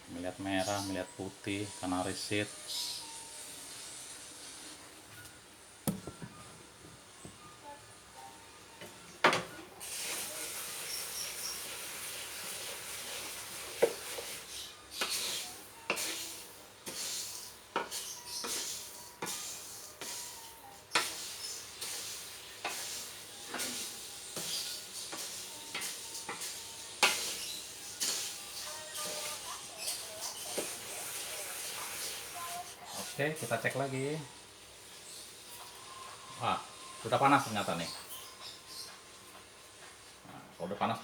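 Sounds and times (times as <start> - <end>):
utensil scraping against pan: 9.8 - 33.5
seeds rustling in a pan: 9.8 - 38.5.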